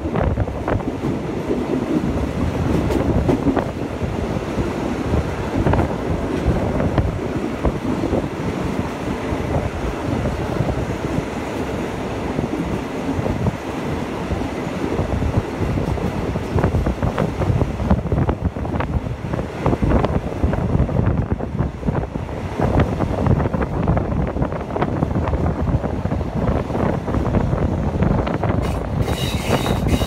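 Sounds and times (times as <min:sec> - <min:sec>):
wheels clacking on track: 0:00.0 - 0:09.7, 0:26.4 - 0:30.0
train carriage rumble: 0:00.0 - 0:30.0
wind buffeting microphone: 0:00.0 - 0:30.0.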